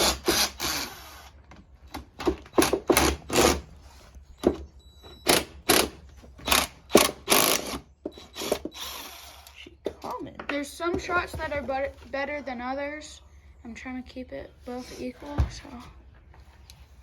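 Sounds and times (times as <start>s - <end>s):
cordless drill backing out bolts: 0.0s - 11.9s.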